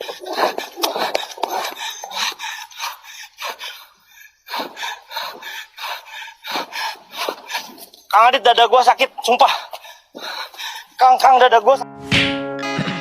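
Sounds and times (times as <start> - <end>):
man panting hard: 0.0 - 7.9, 9.4 - 11.0.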